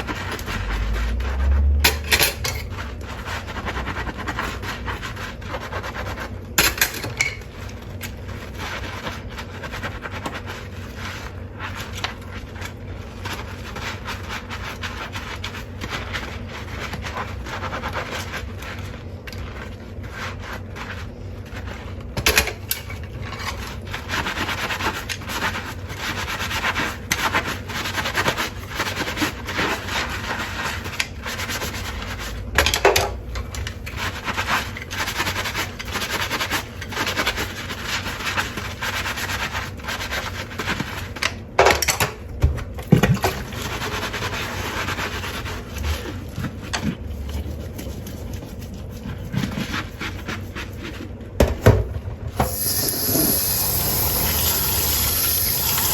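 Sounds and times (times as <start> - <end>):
dishes clinking and knocking: 1.9 - 2.7
dishes scrubbed by hand: 42.8 - 51.2, 52.4 - 55.9.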